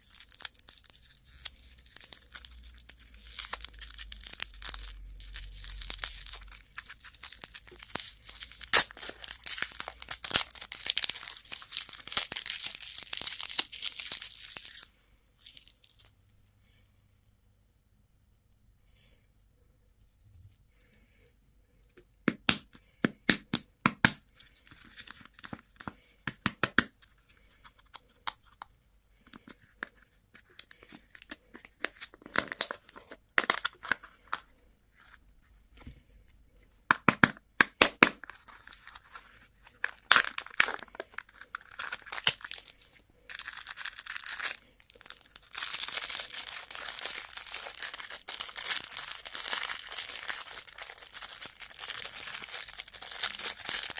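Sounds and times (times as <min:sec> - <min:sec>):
packaging being torn and crinkled: 0:00.0 - 0:16.1, 0:29.3 - 0:34.4, 0:36.9 - 0:53.9.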